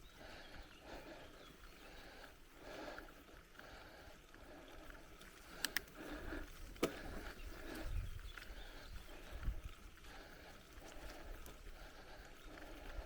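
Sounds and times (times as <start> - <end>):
bicycle tyres on dirt and gravel: 0.0 - 13.0
bike rattling over bumps: 0.1 - 13.0
sharp clicks: 5.5 - 6.0.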